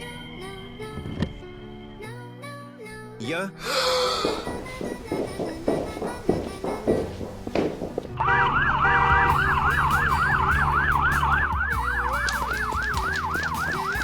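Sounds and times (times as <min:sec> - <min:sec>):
police siren yelping: 0:08.2 - 0:14.0.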